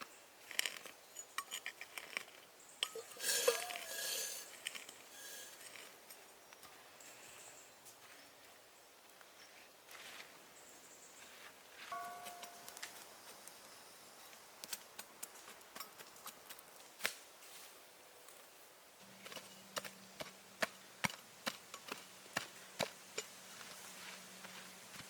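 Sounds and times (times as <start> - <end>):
wood being chopped: 19.2 - 23.3.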